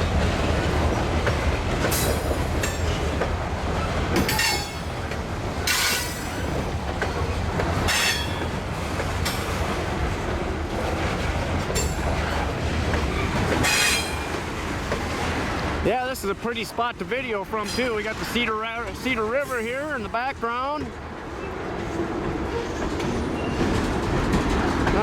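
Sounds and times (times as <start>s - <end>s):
freight train rumbling on rails: 0.0s - 25.0s
train wheel squeals: 4.2s - 5.0s, 5.6s - 7.3s, 7.9s - 8.5s, 13.1s - 14.4s, 22.5s - 23.9s.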